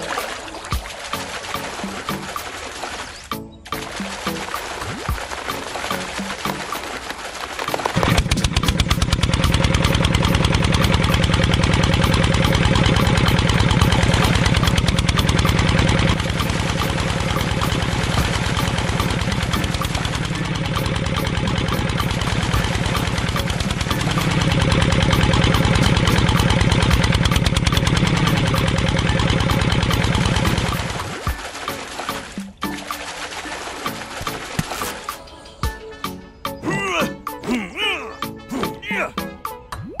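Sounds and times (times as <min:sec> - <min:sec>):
small diesel engine chugging: 0:08.0 - 0:31.0.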